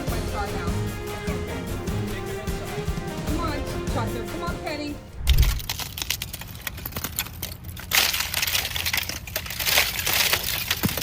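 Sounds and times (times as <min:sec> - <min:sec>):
low thump: 0:05.2 - 0:05.7
dense crackling and crunching: 0:05.2 - 0:11.0.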